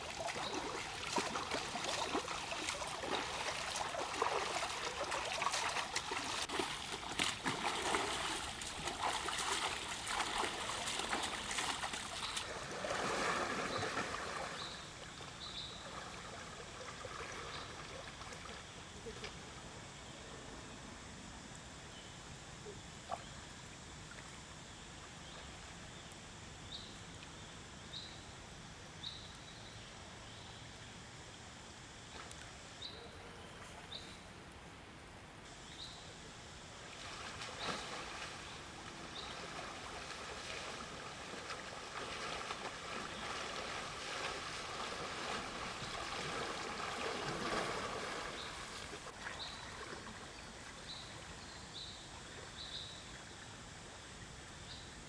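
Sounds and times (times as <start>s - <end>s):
water splashing and sloshing: 0.0s - 19.4s, 36.8s - 51.4s.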